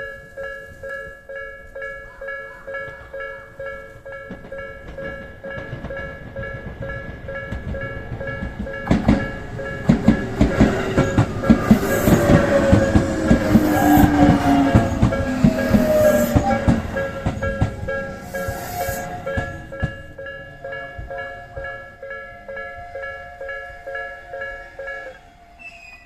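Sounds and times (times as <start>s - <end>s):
level crossing warning bell: 0.0s - 25.4s
train wheels clacking over joints: 2.8s - 23.6s
falling whine: 8.8s - 22.0s.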